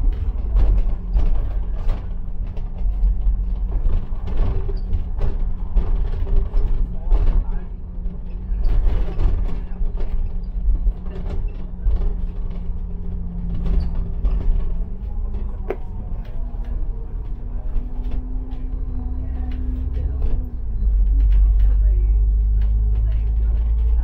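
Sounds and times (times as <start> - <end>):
bus engine rumbling: 0.0 - 24.0
cabin rattles and creaks: 0.1 - 24.0.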